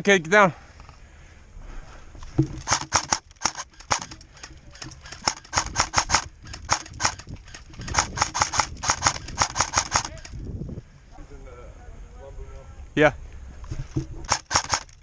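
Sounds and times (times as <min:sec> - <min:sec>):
airsoft gun rapid firing: 0:02.6 - 0:10.3, 0:14.2 - 0:15.0.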